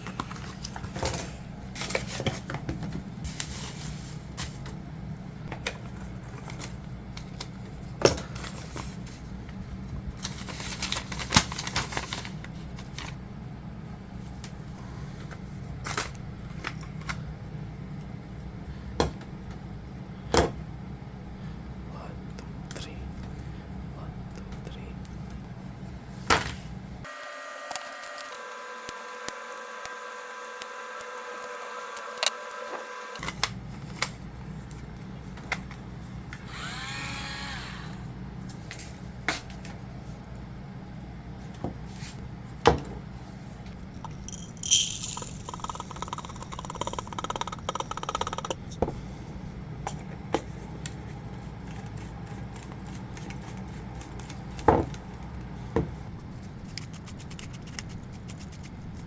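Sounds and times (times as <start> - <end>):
small motor whirring: 27.1 - 33.2, 36.4 - 38.1, 44.3 - 48.6
grinding sound: 43.9 - 48.7.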